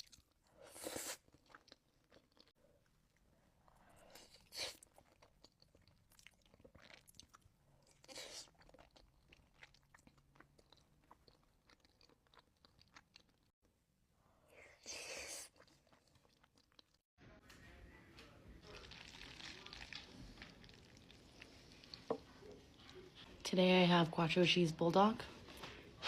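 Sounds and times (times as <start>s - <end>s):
chewing with wet mouth clicks: 4.8s - 13.5s.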